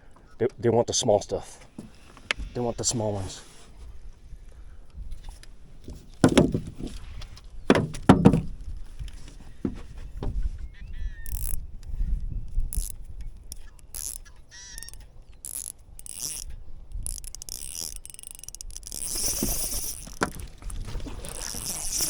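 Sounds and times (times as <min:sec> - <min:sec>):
wind rumbling on microphone: 0:02.3 - 0:18.0, 0:18.6 - 0:22.0
bird chirping: 0:10.0 - 0:16.4
fishing reel clicking and ratcheting: 0:11.1 - 0:20.6, 0:21.3 - 0:22.0.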